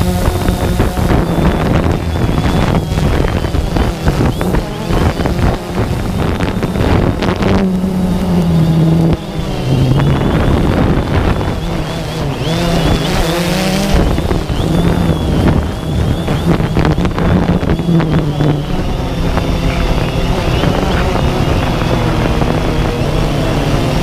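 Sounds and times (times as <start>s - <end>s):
drone propellers whirring: 0.0s - 24.0s
wind buffeting microphone: 0.0s - 24.0s.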